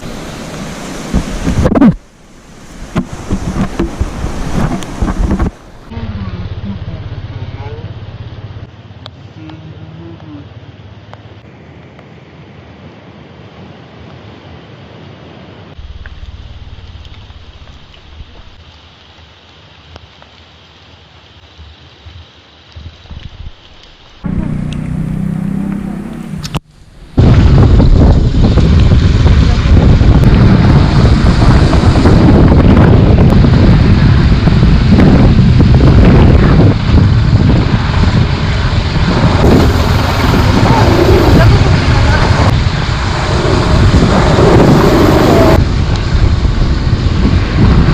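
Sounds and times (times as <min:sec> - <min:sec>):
wind buffeting microphone: 0:00.0 - 0:06.0, 0:26.4 - 0:47.9
steady rushing noise: 0:00.0 - 0:09.0, 0:23.0 - 0:47.9
motorcycle running: 0:03.3 - 0:08.7, 0:24.2 - 0:47.9.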